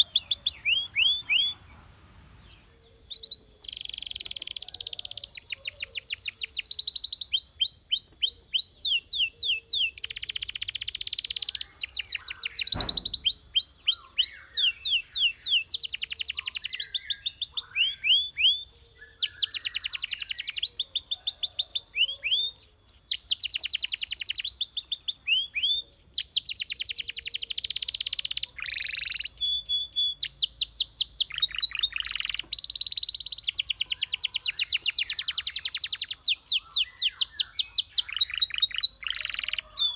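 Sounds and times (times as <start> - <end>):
canary singing trills: 0.0 - 39.9
short knock: 12.7 - 13.4.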